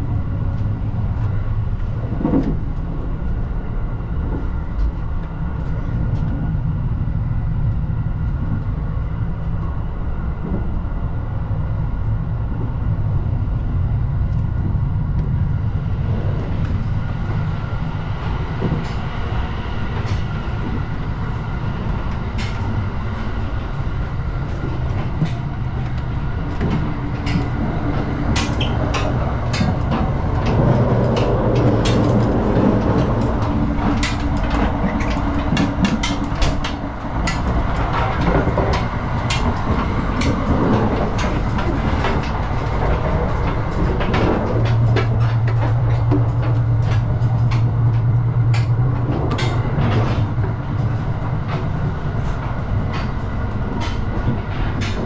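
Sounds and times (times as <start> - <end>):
low hum: 0.0 - 55.0
train wheels rumbling on track: 0.0 - 55.0.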